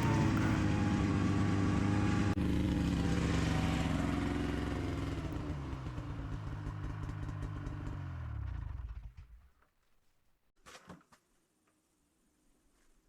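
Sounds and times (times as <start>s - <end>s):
snowmobile engine running: 0.0s - 9.1s.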